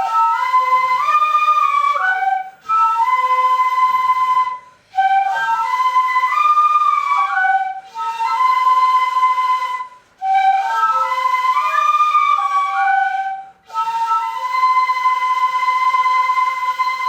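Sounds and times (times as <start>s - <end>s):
bamboo flutes playing: 0.0s - 17.0s.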